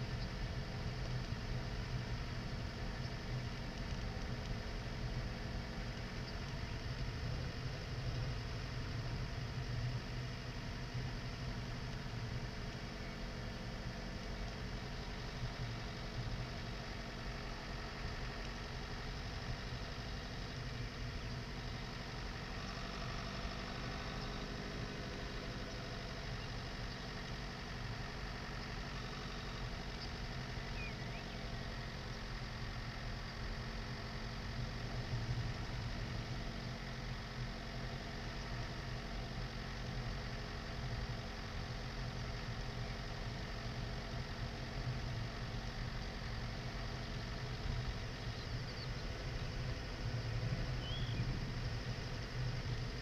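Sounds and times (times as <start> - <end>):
diesel car engine at low revs: 0.0 - 53.0.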